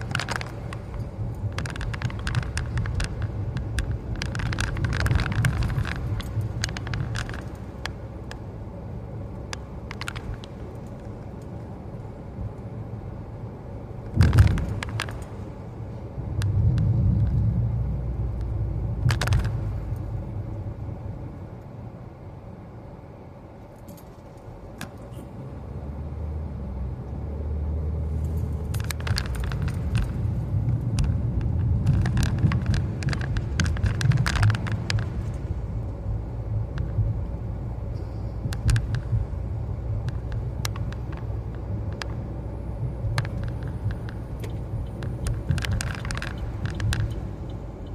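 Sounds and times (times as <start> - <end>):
light clicks and rattles: 0.0 - 8.4, 9.5 - 12.7, 14.0 - 15.5, 18.3 - 20.1, 28.1 - 47.9
car engine and tyre rumble: 0.0 - 47.9.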